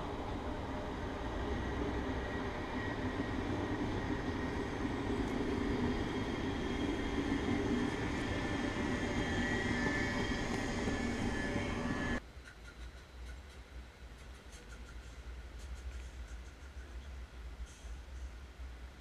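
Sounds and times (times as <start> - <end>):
thin high whine: 0.0 - 12.2
train wheels rumbling on rails: 0.0 - 18.6.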